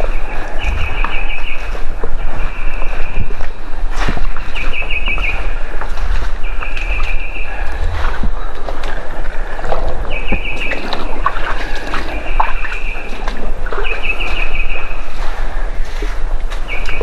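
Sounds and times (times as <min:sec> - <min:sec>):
songbird trilling: 0:00.0 - 0:03.5, 0:04.3 - 0:05.8, 0:06.4 - 0:07.8, 0:10.0 - 0:15.2, 0:16.7 - 0:17.0
noisy background with low rumble: 0:00.0 - 0:17.0.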